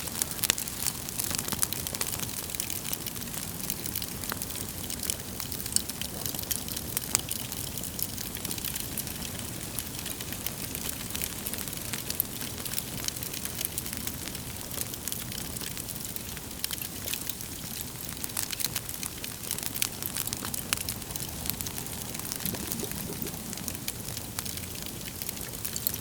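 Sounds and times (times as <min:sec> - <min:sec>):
fire crackling and popping: 0:00.0 - 0:26.0
low rumble of flames: 0:17.6 - 0:26.0.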